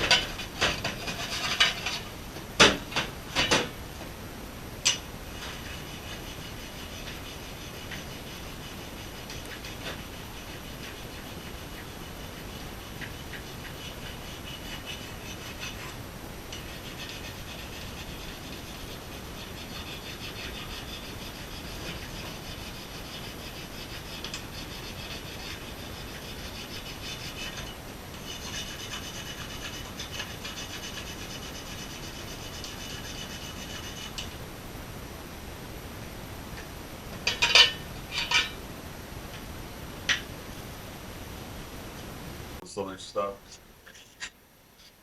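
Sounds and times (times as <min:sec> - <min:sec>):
brush scrubbing metal: 0:00.0 - 0:02.1, 0:05.3 - 0:34.4.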